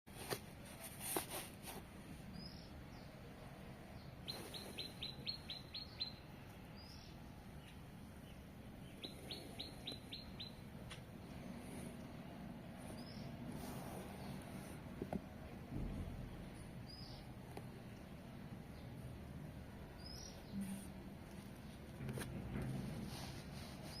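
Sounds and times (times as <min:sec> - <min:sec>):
small bird trilling: 0:04.3 - 0:06.2, 0:08.8 - 0:10.6.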